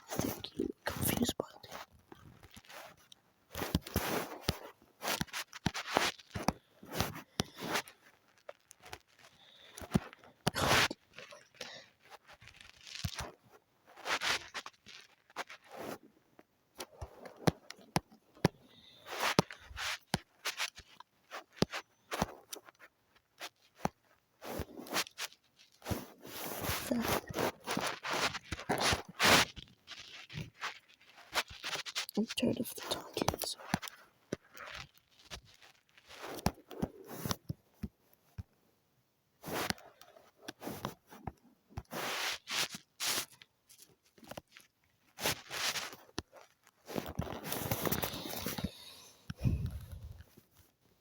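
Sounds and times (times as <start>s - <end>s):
scratchy drawing strokes: 10.6s - 11.5s.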